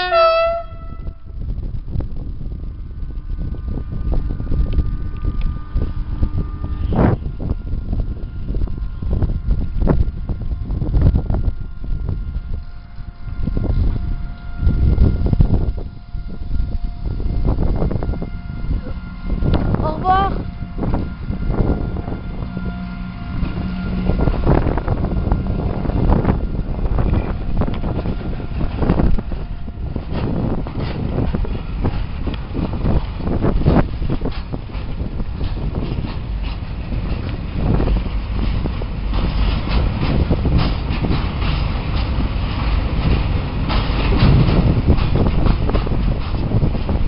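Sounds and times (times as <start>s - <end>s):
loud low rumble: 0.0s - 47.0s
wind buffeting microphone: 0.0s - 47.0s
wheels clicking over rails: 22.4s - 47.0s
knocks and rattles: 34.2s - 47.0s.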